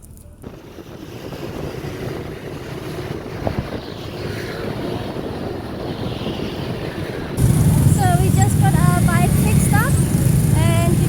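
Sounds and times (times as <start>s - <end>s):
wind on microphone: 0.1s - 11.0s
street traffic: 4.7s - 11.0s
motorbike engine: 7.4s - 11.0s.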